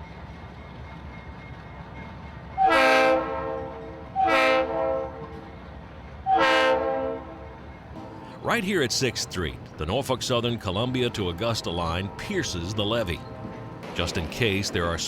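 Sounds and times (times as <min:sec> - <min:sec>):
low train rumble: 0:00.0 - 0:15.0
locomotive air horn blasts: 0:02.6 - 0:05.3, 0:06.3 - 0:08.2.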